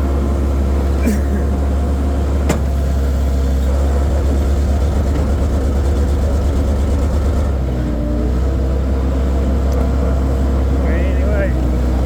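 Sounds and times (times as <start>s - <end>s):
loader engine rumbling: 0.0s - 12.0s.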